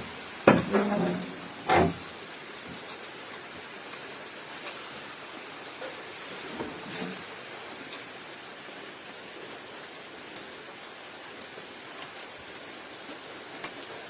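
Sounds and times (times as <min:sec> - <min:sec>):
steady rain hiss: 0:00.0 - 0:14.0.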